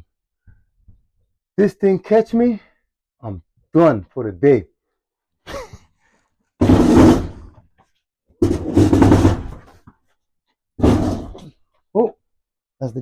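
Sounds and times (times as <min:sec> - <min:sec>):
heavy object scraping on concrete: 0:06.6 - 0:07.6, 0:08.4 - 0:09.7, 0:10.8 - 0:11.4.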